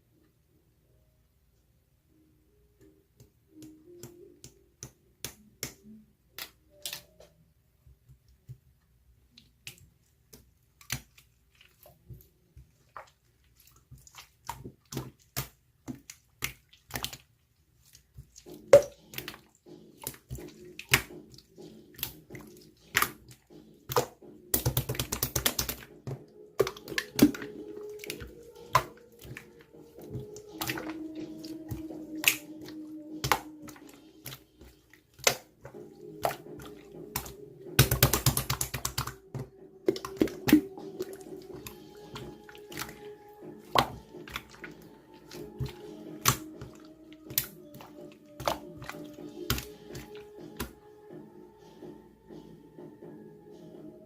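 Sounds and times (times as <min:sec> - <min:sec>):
slime clicking and popping: 0:22.0 - 0:26.0, 0:26.6 - 0:40.9
slime crackles: 0:26.6 - 0:39.3.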